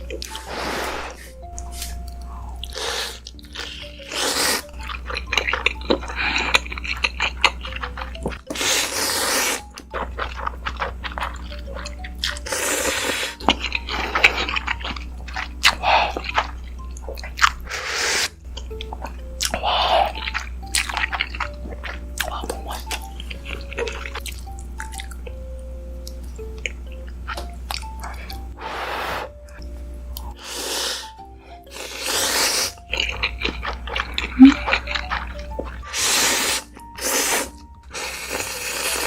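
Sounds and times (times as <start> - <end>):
noodle slurping: 0.2 - 2.0, 2.6 - 16.5, 17.2 - 18.4, 30.4 - 39.0
wet chewing clicks: 9.6 - 12.6, 13.3 - 17.8, 18.4 - 25.3, 32.8 - 35.9.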